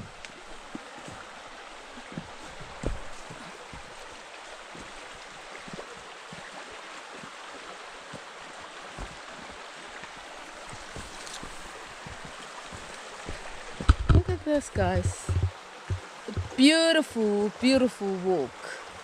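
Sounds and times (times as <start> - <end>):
stream rushing over rocks: 0.0 - 19.0
low thumps: 13.3 - 16.6.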